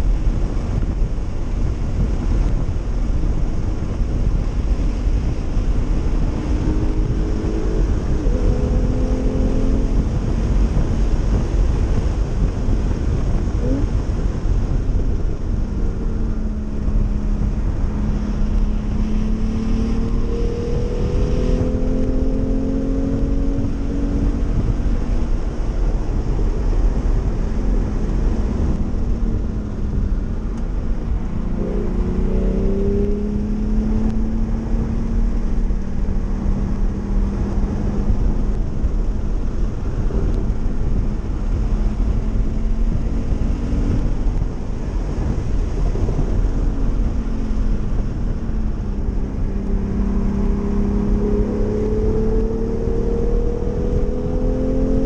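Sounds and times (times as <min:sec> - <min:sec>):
car engine accelerating and shifting: 0:00.0 - 0:55.0
road and wind noise rumble: 0:00.0 - 0:55.0.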